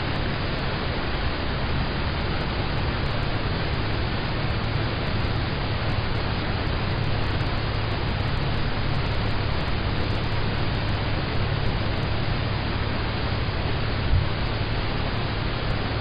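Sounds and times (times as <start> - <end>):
rain on car roof from inside: 1.0 - 16.0.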